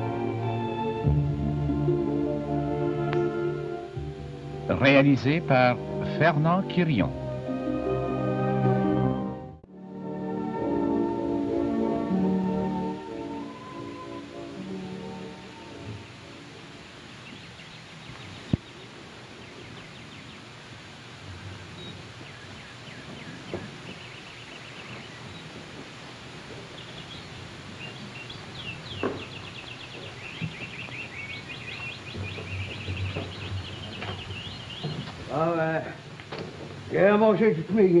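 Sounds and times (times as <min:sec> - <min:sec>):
steady hiss: 0:00.0 - 0:08.0, 0:10.0 - 0:38.0
birds chirping trills: 0:10.4 - 0:36.1.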